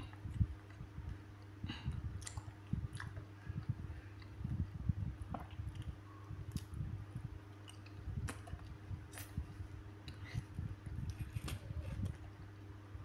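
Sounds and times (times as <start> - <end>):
chewing soft fruit: 0.0 - 4.6, 5.2 - 6.8
steady low hum: 0.0 - 13.0.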